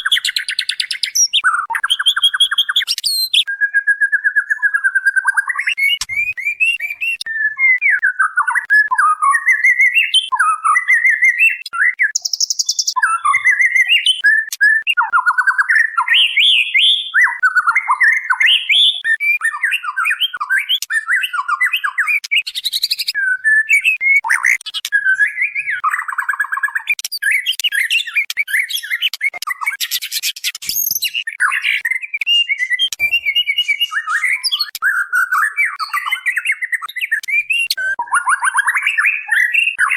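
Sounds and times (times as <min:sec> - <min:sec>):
bird whistling varied phrases: 0:00.0 - 0:29.0.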